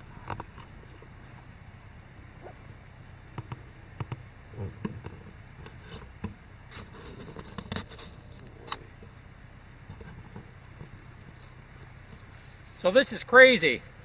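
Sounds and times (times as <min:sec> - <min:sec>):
tape rustling and scraping: 0:05.1 - 0:09.1.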